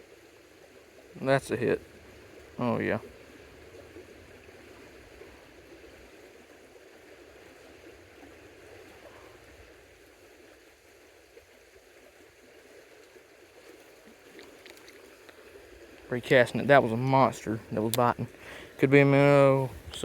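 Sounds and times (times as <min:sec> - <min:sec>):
creek water flowing: 0:00.0 - 0:20.0.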